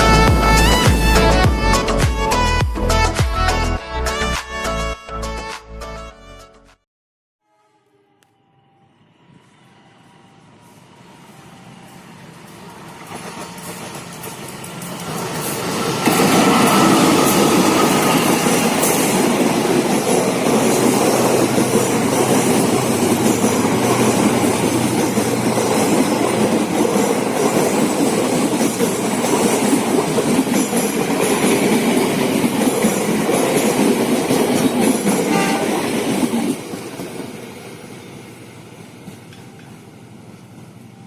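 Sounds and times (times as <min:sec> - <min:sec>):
train rumbling past on rails: 0:00.0 - 0:02.0, 0:08.4 - 0:41.0
train wheel clatter: 0:12.6 - 0:37.4.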